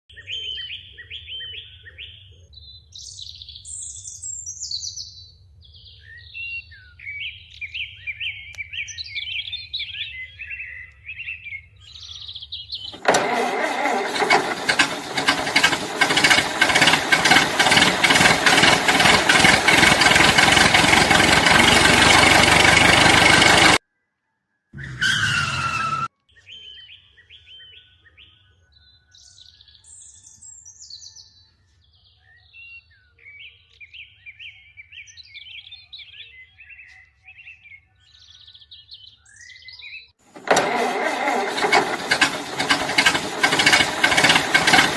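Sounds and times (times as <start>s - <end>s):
rapidly pulsing engine: 12.9s - 23.8s, 40.4s - 44.9s.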